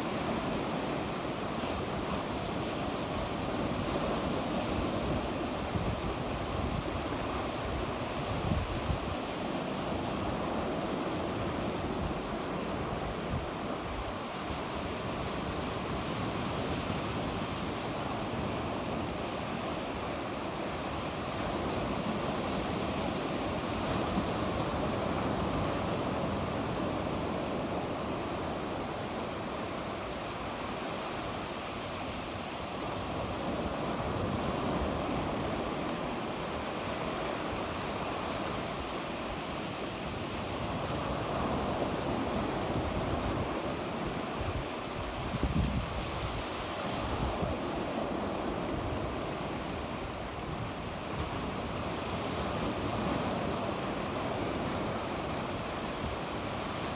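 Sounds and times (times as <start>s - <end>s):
wind on microphone: 0.0s - 20.0s, 40.1s - 56.9s
sea waves breaking on shore: 0.0s - 56.9s.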